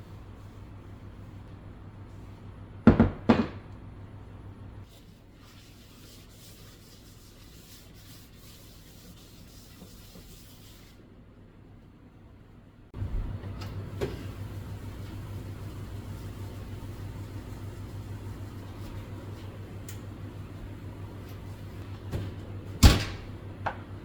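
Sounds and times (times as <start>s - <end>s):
steady low hum: 0.0s - 4.9s, 12.2s - 24.0s.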